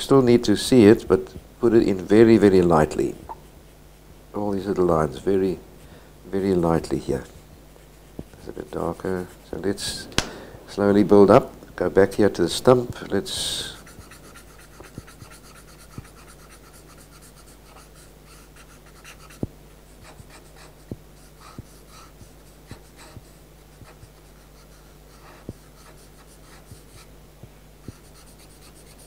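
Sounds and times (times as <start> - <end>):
faint low hum: 0.0 - 29.0
pencil scratching on paper: 7.7 - 9.8, 13.4 - 27.1, 27.8 - 29.0
pencil tip ticking on paper: 13.8 - 17.8.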